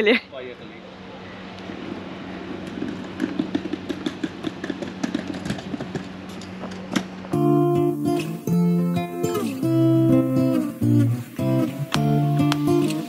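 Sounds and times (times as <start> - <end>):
car engine humming: 1.0 - 13.0
acoustic guitar music: 7.3 - 13.0.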